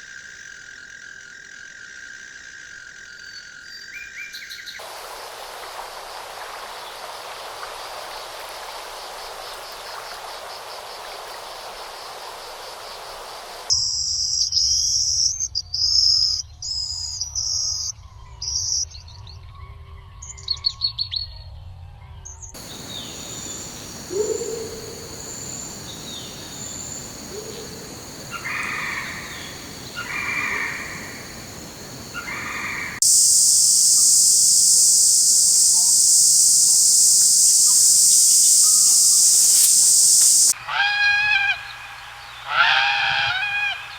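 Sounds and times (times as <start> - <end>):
steady hiss: 4.8 - 13.7, 22.6 - 40.6
high insect drone: 4.8 - 13.8, 22.6 - 40.6.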